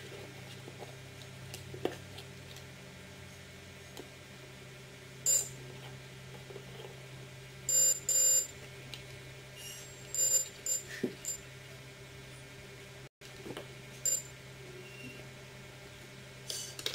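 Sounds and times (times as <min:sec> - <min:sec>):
buzzer short pitched beeps: 0:05.3 - 0:05.6, 0:07.7 - 0:08.5, 0:10.1 - 0:11.4, 0:14.0 - 0:14.3.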